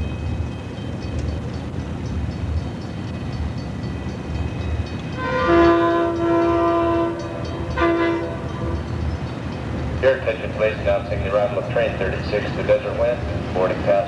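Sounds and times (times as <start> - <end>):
low rumble of train: 0.0 - 14.0
locomotive horn blasts: 5.1 - 9.0.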